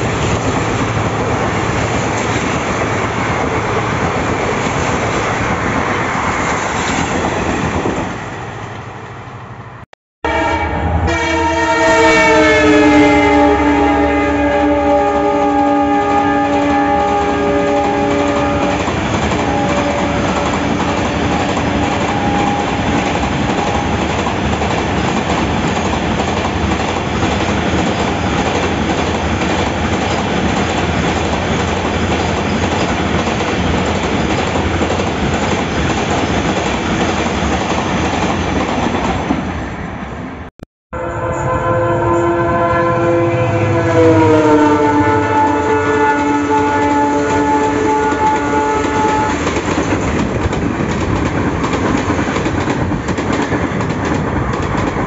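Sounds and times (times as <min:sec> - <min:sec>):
freight wagons rumbling on rails: 0:00.0 - 0:08.3, 0:14.9 - 0:39.4
locomotive horn chord: 0:10.2 - 0:23.0, 0:40.9 - 0:49.5.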